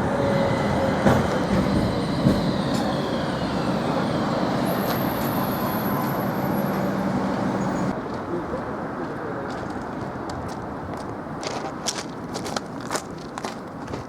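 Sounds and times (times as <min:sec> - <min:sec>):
tram knocks: 0:00.0 - 0:07.9
tram rumbling: 0:00.0 - 0:10.9.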